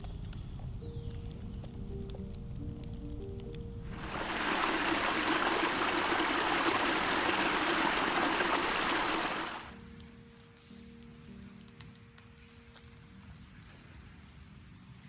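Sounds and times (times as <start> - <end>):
stream flowing over rocks: 3.9 - 9.7.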